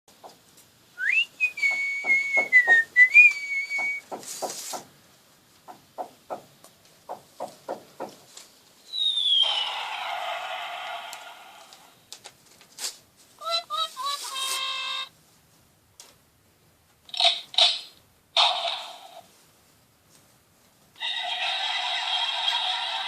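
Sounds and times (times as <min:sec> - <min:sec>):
whistling: 0:01.0 - 0:04.1, 0:08.9 - 0:10.3.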